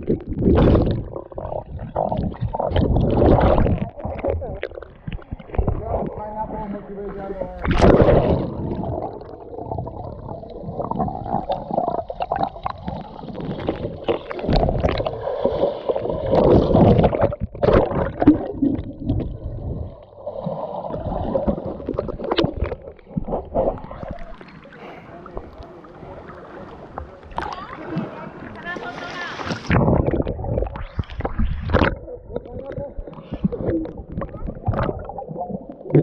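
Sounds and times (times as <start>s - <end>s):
muffled underwater gurgling: 0.0s - 36.0s
loud water splash: 7.6s - 9.0s, 27.3s - 31.9s.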